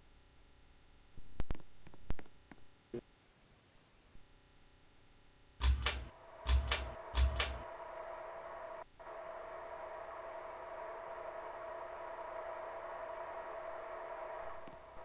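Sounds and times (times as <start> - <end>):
fan switch clicks: 5.6 - 7.7
fan motor humming: 5.6 - 8.6.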